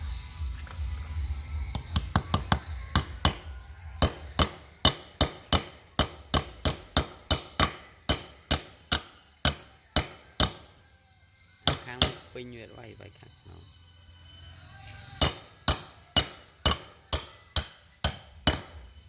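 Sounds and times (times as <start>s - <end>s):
hammer striking metal: 1.8s - 10.8s, 11.7s - 12.4s, 15.2s - 19.0s.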